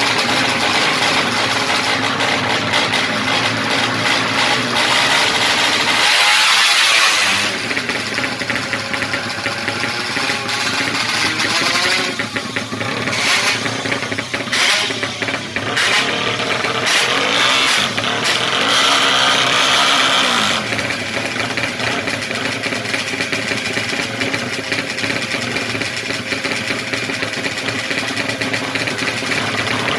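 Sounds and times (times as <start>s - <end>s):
motorcycle engine revving: 0.0s - 29.9s.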